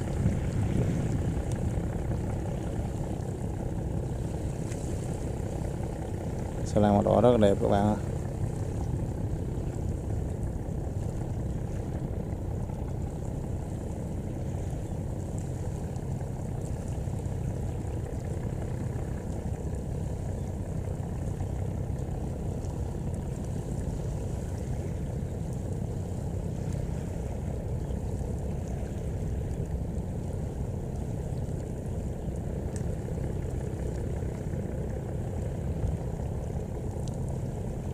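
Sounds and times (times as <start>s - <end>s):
boat diesel engine droning: 0.0s - 37.9s.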